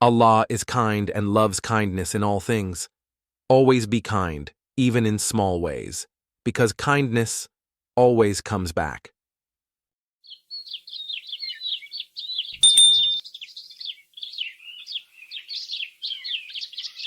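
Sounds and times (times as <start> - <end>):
small songbirds chirping: 10.2 - 17.0
brief high steady tone: 12.6 - 13.2.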